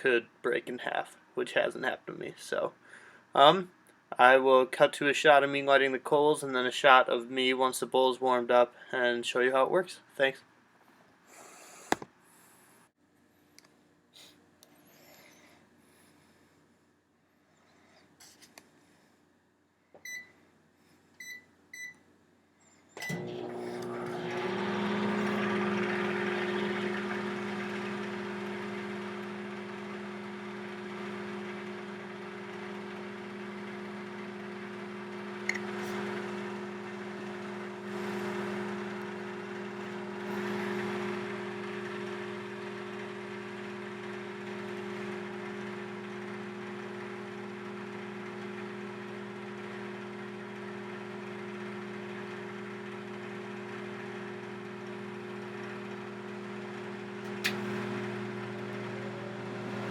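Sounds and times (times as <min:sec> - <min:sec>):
microwave oven humming: 0:22.9 - 0:59.9.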